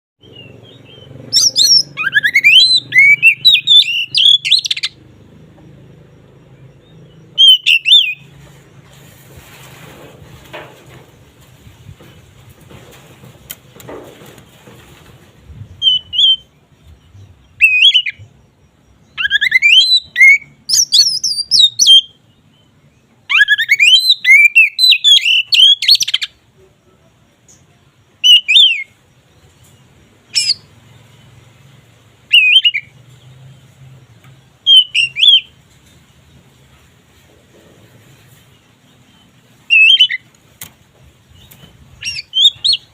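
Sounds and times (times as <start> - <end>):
bird singing whistles and chatter: 0.2 - 5.0, 7.2 - 8.3, 15.6 - 18.3, 19.1 - 22.2, 23.3 - 26.4, 27.5 - 29.0, 30.4 - 30.7, 32.3 - 33.0, 34.6 - 35.6, 39.7 - 40.3, 41.4 - 42.9.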